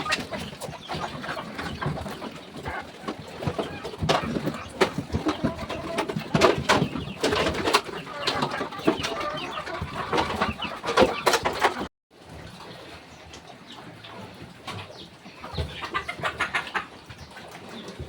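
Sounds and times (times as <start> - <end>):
chickens clucking: 0.0 - 18.0
sharp knocks and clatter: 1.6 - 8.6.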